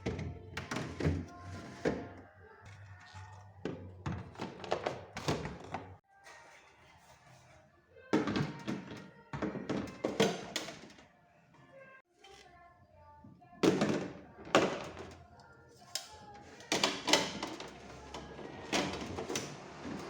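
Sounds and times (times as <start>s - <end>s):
quiet background music: 0.0s - 20.0s.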